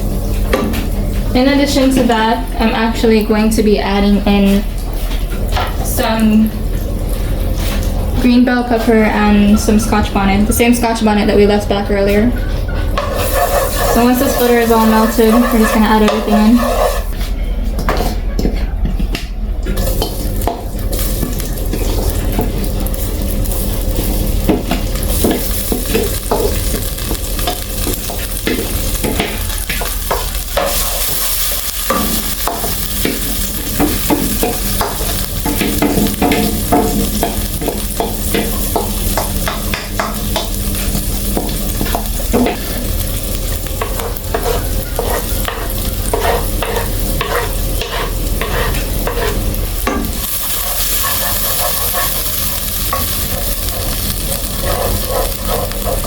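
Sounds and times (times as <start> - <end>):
spoon scraping and knocking pot: 12.7 - 17.2, 43.7 - 56.0
vegetables sizzling in butter: 12.8 - 17.2, 19.8 - 56.0.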